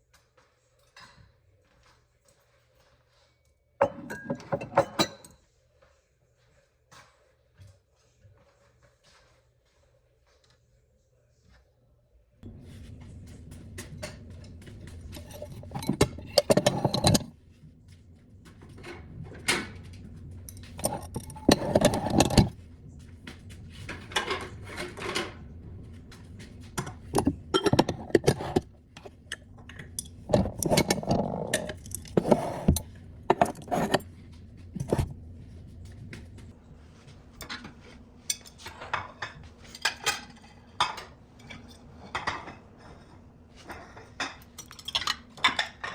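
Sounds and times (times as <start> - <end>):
dishes and cutlery clinking: 3.8 - 5.4, 13.8 - 17.4, 18.5 - 22.6, 23.7 - 25.5, 26.2 - 34.1, 34.8 - 35.1, 37.4 - 45.9.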